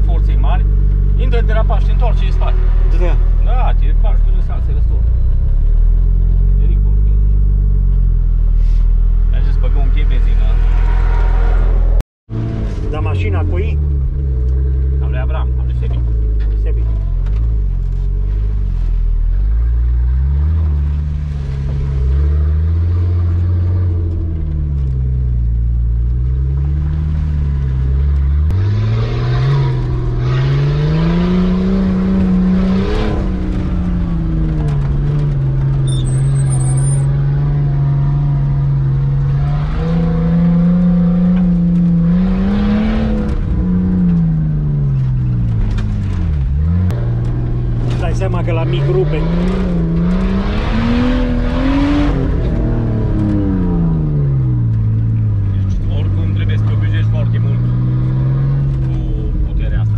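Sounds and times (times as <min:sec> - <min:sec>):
engine revving under load: 0:19.4 - 0:59.9.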